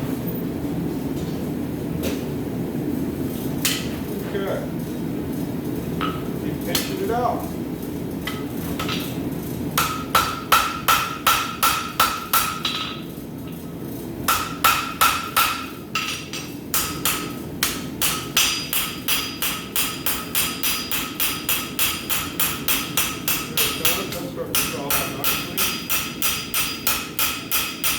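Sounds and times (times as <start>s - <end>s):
hammer striking steel on anvil: 9.8s - 13.0s, 14.3s - 27.9s.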